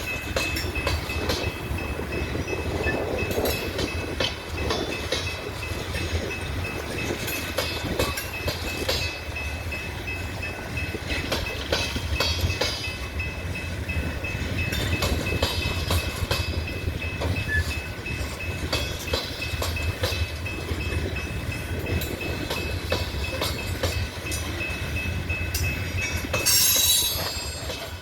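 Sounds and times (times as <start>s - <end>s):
train cars rolling past: 0.0s - 28.0s
wheel clanks over rail joints: 25.5s - 28.0s.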